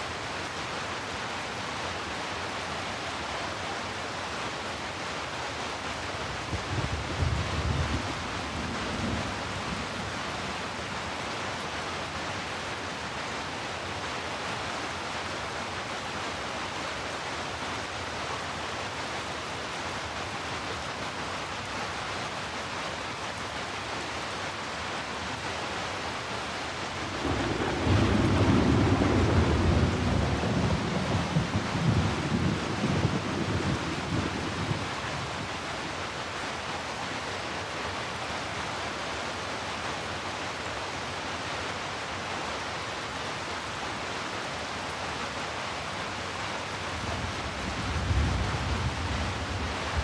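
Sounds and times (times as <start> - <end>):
heavy rain falling: 0.0 - 50.0
deep thunder rumble: 27.1 - 34.9.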